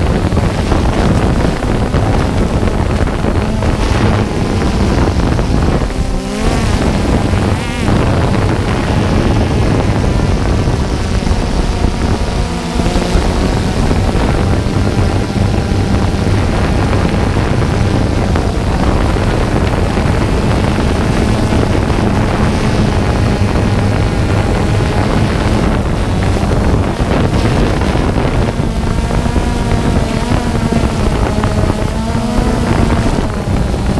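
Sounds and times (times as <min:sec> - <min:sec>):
drone propellers buzzing: 0:00.0 - 0:33.9
wind buffeting microphone: 0:00.0 - 0:33.9.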